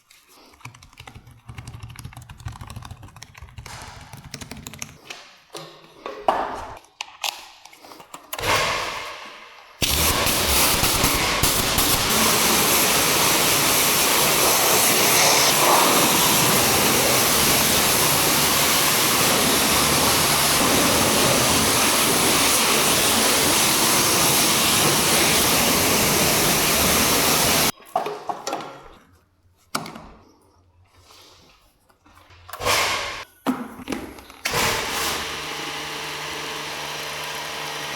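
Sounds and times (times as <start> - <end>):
loud rushing machine noise: 9.8 - 27.7.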